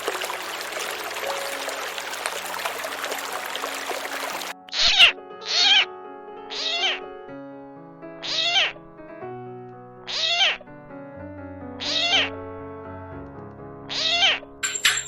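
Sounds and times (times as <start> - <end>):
background music with held notes: 0.0 - 8.1, 8.7 - 15.0
animal calling with wavering pitch: 4.7 - 5.9, 6.5 - 7.0, 8.2 - 8.8, 10.1 - 10.6, 11.8 - 12.3, 13.9 - 14.4.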